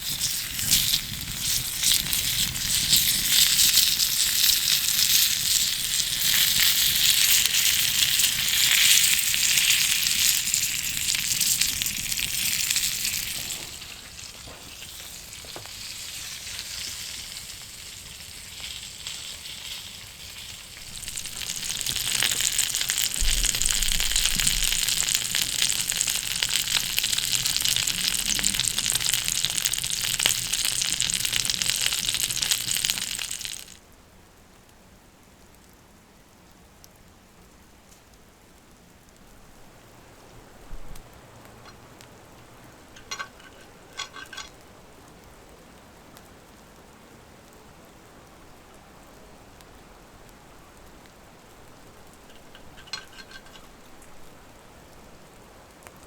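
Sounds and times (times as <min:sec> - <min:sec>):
food sizzling in a pan: 0:00.0 - 0:33.8, 0:51.8 - 0:54.4.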